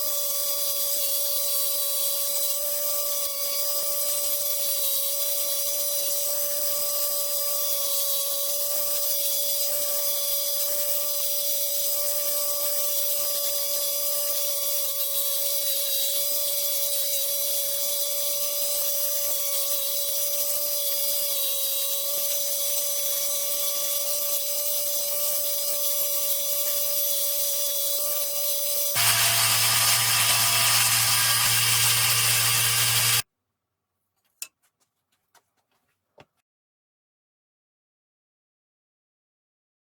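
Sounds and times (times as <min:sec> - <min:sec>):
jigsaw whining: 0:26.5 - 0:33.3.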